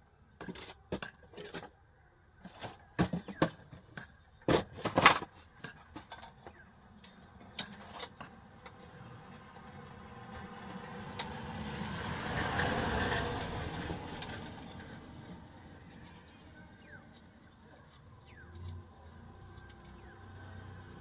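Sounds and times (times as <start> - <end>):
hard objects clicking and knocking: 0.4 - 1.8, 2.4 - 8.4.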